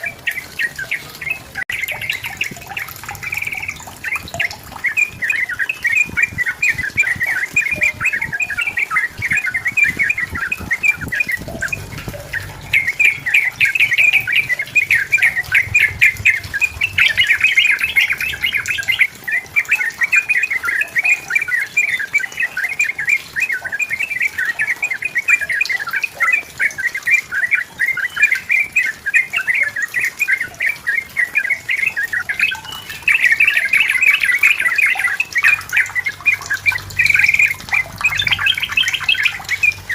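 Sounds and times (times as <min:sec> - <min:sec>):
bird singing chattering notes: 0:00.0 - 0:39.9.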